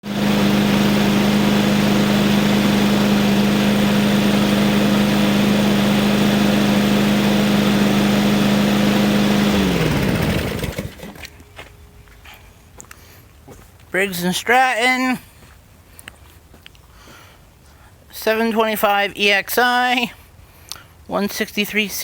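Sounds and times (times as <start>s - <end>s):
engine winding down: 0.0s - 11.4s
mower engine running: 0.0s - 11.4s.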